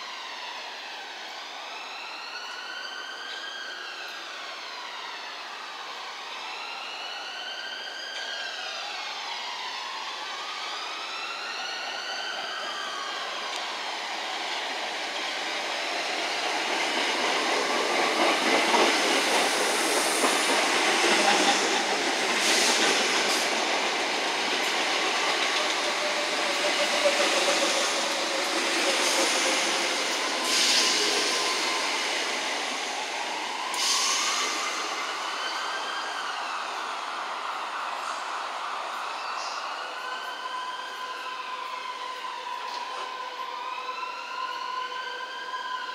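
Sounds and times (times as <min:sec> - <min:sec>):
train wheels rumbling on rail: 0:13.4 - 0:36.8.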